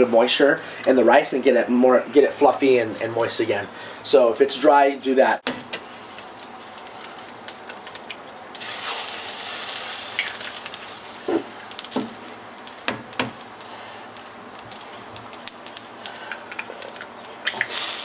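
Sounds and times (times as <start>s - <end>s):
rice and sausage sizzling in pan: 5.5s - 18.0s
small pops and clicks: 14.6s - 17.7s.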